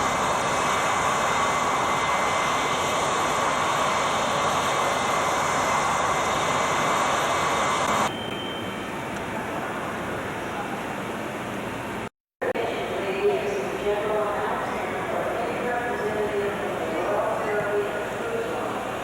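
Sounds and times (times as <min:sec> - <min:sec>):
jet engines running: 0:00.0 - 0:08.1.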